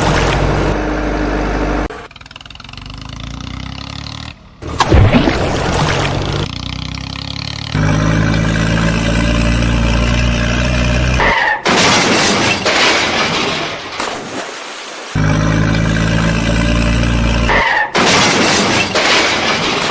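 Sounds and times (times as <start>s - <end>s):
engine drone: 0.0s - 11.6s, 15.1s - 17.9s.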